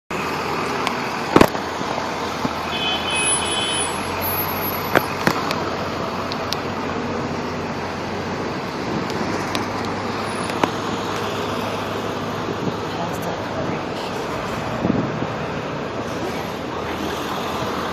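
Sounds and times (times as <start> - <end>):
city street traffic: 0.1 - 17.9.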